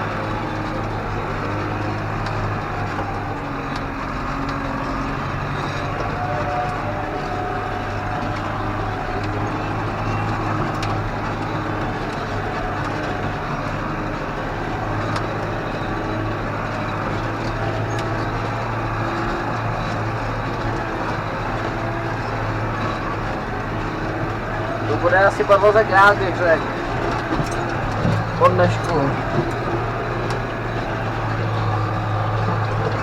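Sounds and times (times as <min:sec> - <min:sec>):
faint clicks: 0:00.0 - 0:33.0
tractor engine droning: 0:00.0 - 0:33.0.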